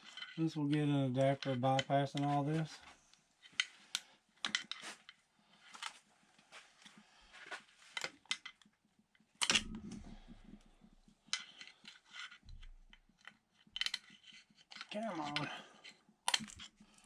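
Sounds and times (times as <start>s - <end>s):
metal tools clicking and clinking: 0.0s - 2.3s.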